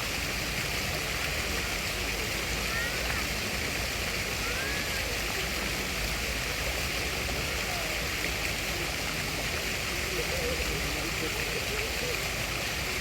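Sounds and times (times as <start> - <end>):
faint voices: 0.0 - 13.0
rushing water: 0.0 - 13.0.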